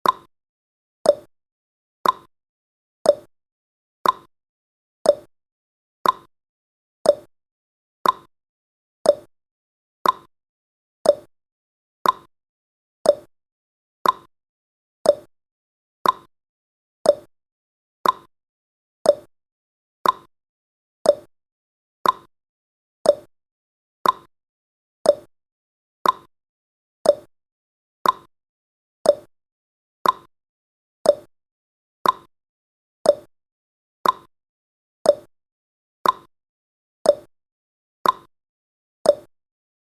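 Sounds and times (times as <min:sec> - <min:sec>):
timer ticking: 0:00.0 - 0:00.3, 0:01.1 - 0:01.3, 0:02.0 - 0:02.3, 0:03.1 - 0:03.3, 0:04.0 - 0:04.3, 0:05.1 - 0:05.3, 0:06.0 - 0:06.3, 0:07.0 - 0:07.3, 0:08.0 - 0:08.3, 0:09.0 - 0:09.3, 0:10.0 - 0:10.3, 0:11.0 - 0:11.3, 0:12.0 - 0:12.3, 0:13.0 - 0:13.3, 0:14.0 - 0:14.3, 0:15.0 - 0:15.3, 0:16.0 - 0:16.3, 0:17.0 - 0:17.3, 0:18.0 - 0:18.3, 0:19.0 - 0:19.3, 0:20.0 - 0:20.3, 0:21.0 - 0:21.3, 0:22.0 - 0:22.3, 0:23.0 - 0:23.3, 0:24.0 - 0:24.3, 0:25.0 - 0:25.3, 0:26.0 - 0:26.3, 0:27.0 - 0:27.3, 0:28.0 - 0:28.3, 0:29.0 - 0:29.3, 0:30.0 - 0:30.3, 0:31.0 - 0:31.3, 0:32.0 - 0:32.3, 0:33.0 - 0:33.3, 0:34.0 - 0:34.3, 0:35.1 - 0:35.3, 0:36.0 - 0:36.3, 0:37.1 - 0:37.3, 0:38.0 - 0:38.3, 0:39.1 - 0:39.3.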